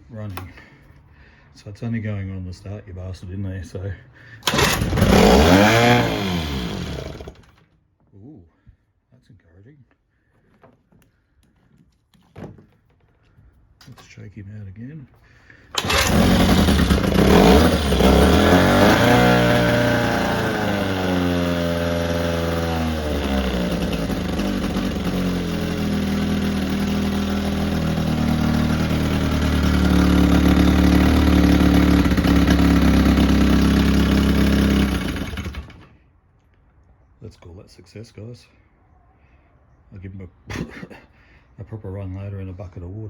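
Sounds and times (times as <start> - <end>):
outboard motor running: 4.4 - 7.5, 15.7 - 35.8.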